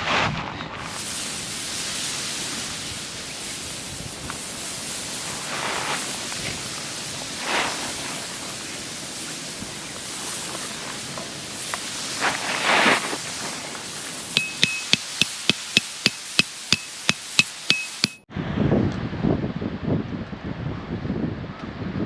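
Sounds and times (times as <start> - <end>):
wind on microphone: 0.0 - 14.6, 18.3 - 22.0
hammer striking metal tent peg: 14.4 - 18.2.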